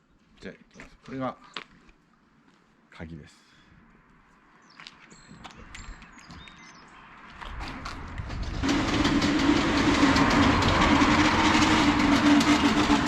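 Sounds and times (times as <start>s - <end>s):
garage door rattling: 7.7s - 13.0s
motor hum: 8.2s - 13.0s.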